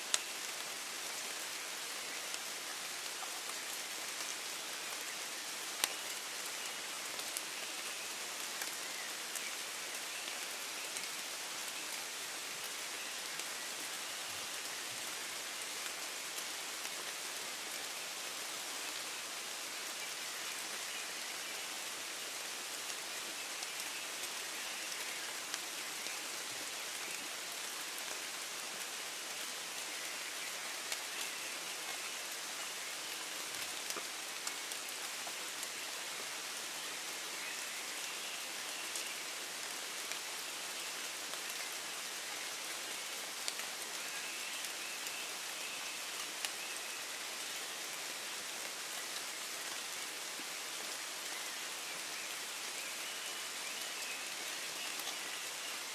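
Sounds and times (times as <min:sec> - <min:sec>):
steady rain hiss: 0:00.0 - 0:55.9.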